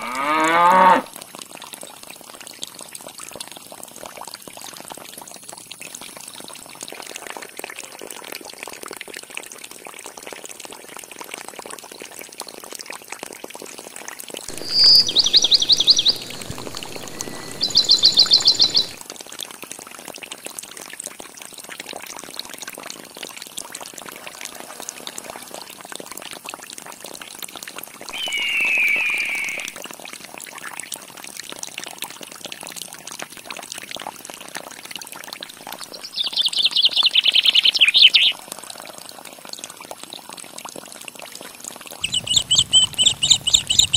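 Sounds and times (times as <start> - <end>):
water trickling into pond: 0.0 - 43.9
high rapid chirping trills: 14.5 - 19.0, 28.1 - 29.8, 42.0 - 43.9.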